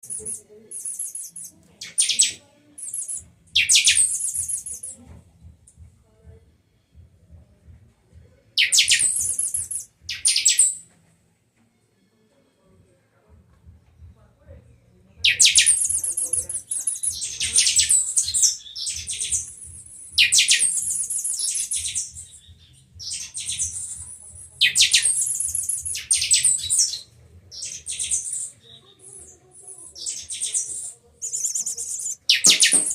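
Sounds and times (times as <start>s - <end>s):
bird singing rapid high notes: 0.0s - 5.0s, 8.6s - 10.8s, 15.2s - 32.9s.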